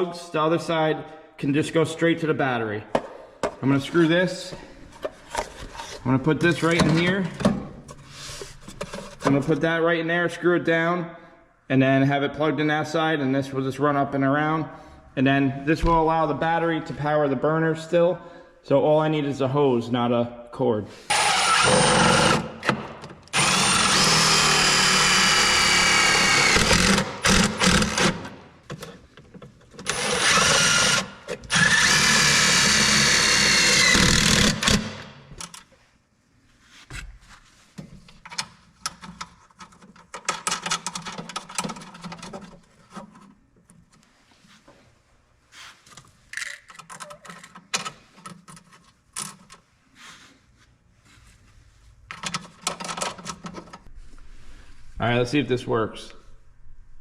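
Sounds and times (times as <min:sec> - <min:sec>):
power drill whining: 0:21.1 - 0:22.6, 0:23.3 - 0:28.3, 0:29.9 - 0:35.0
clicks and rattles of parts: 0:38.0 - 0:44.0, 0:45.9 - 0:49.7, 0:52.1 - 0:53.9.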